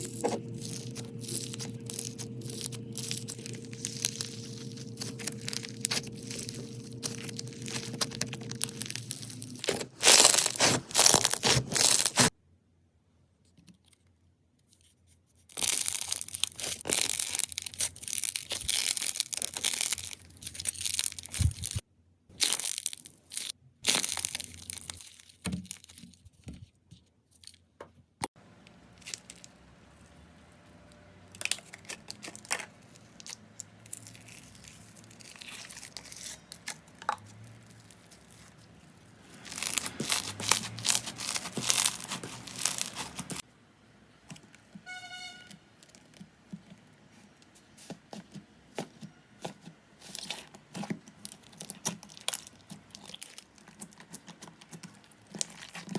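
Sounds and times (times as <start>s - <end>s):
slime crackling when squeezed: 0.0s - 12.3s, 15.5s - 21.8s, 31.4s - 43.4s, 50.0s - 55.9s
short high squeak: 44.9s - 45.6s.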